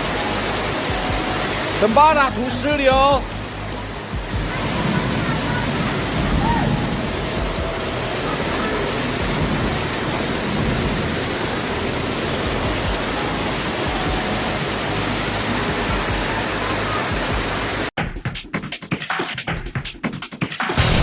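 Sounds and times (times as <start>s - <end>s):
storm wind and rain: 0.0s - 17.9s.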